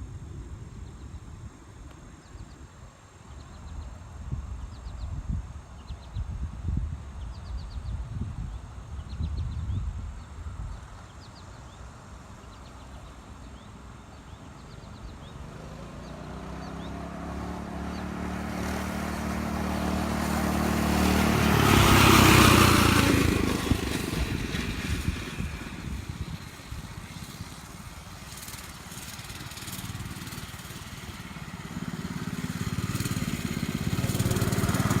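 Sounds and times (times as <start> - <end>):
mini bike engine passing: 14.6 - 35.0.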